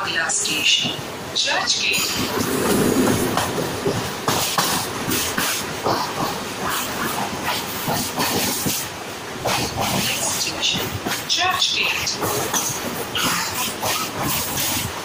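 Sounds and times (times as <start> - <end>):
passing train rumble: 0.0 - 15.0
wind and track noise: 0.0 - 15.0
wheels clattering over rail joints: 1.8 - 6.4.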